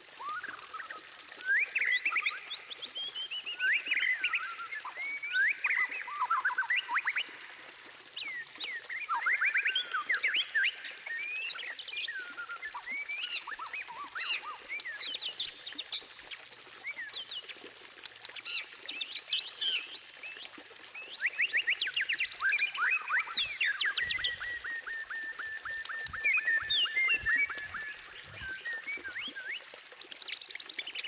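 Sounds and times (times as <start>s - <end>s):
bird singing whistled song: 0.2s - 7.2s, 8.2s - 15.6s, 21.0s - 31.0s.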